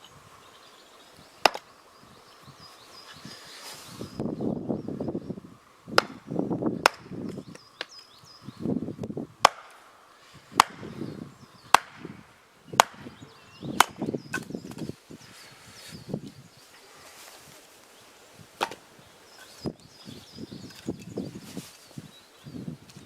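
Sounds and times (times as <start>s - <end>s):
small birds chirping: 0.0s - 23.0s
axe strikes chopping wood: 1.4s - 1.6s, 6.0s - 6.2s, 6.8s - 7.1s, 9.4s - 9.8s, 10.6s - 10.9s, 11.7s - 12.1s, 12.8s - 13.1s, 13.8s - 14.5s, 18.6s - 18.8s
wood crunching: 18.5s - 19.8s.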